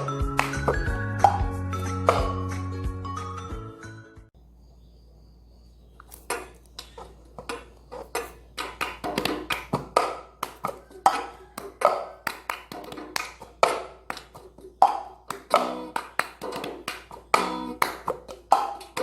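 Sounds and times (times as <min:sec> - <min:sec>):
hand claps: 0:00.2 - 0:01.4, 0:08.6 - 0:10.8, 0:11.6 - 0:19.0.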